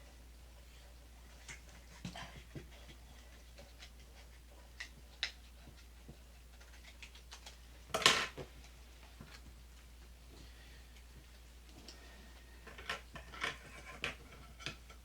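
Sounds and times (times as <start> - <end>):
scrape or rustle: 13.2 - 14.7.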